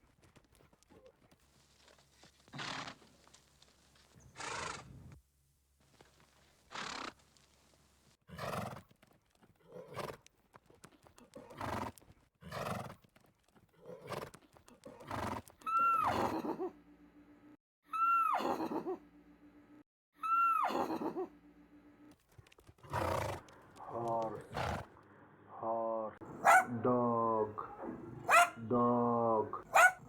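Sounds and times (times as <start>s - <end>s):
horse breathy snorts: 2.5s - 3.1s, 4.4s - 5.1s, 6.7s - 7.2s, 8.3s - 8.8s, 11.4s - 13.0s, 13.8s - 15.5s, 22.8s - 24.9s
horse neighing: 15.0s - 16.4s.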